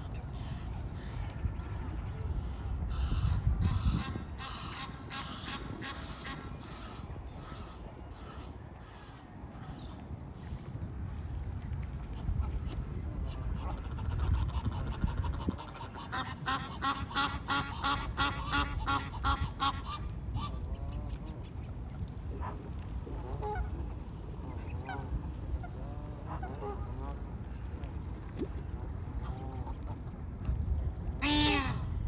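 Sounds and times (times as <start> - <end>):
steady low rumble: 10.8 - 32.0.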